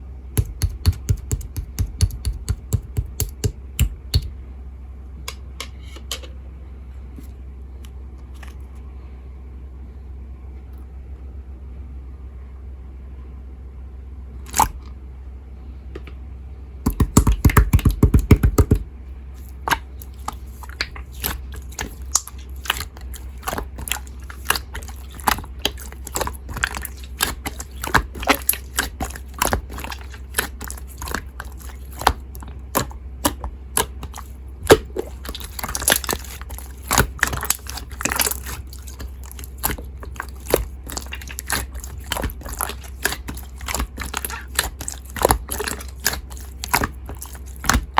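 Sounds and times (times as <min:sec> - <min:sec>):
slime squished by hand: 0:14.4 - 0:14.8, 0:16.9 - 0:18.8, 0:19.4 - 0:47.9.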